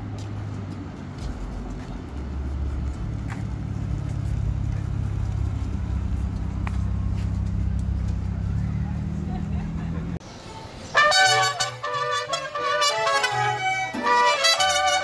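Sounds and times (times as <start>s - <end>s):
car engine low drone: 0.0s - 10.9s.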